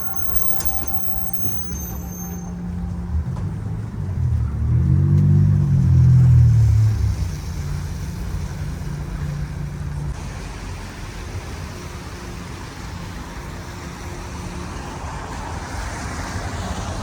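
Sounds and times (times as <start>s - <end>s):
vehicle engine passing close: 0.0s - 11.7s
street traffic: 0.0s - 17.0s.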